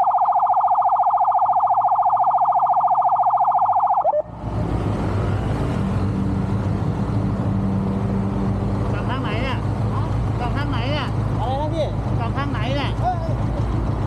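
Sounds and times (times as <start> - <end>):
fast warbling siren: 0.0 - 4.4
engine and road noise: 0.0 - 14.0.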